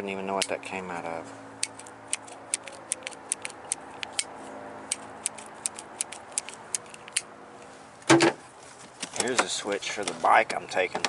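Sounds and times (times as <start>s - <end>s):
small metal parts clicking: 1.6s - 4.3s, 4.9s - 7.2s.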